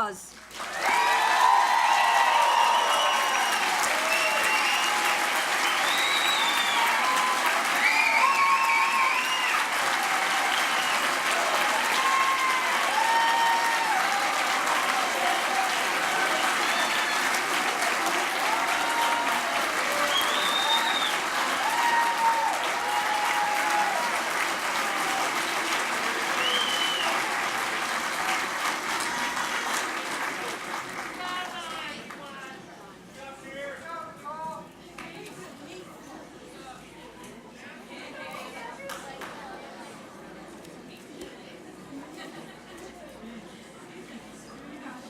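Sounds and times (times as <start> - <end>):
audience applauding: 0.5 - 32.2.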